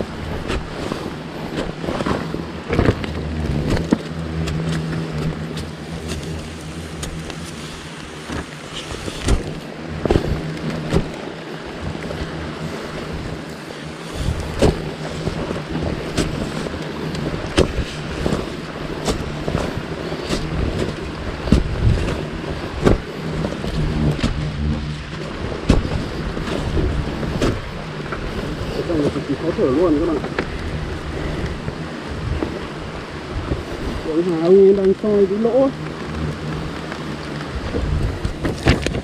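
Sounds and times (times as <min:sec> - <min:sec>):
steady low hum: 0:00.0 - 0:39.0
blade digging into soil: 0:00.4 - 0:11.2, 0:16.0 - 0:24.9.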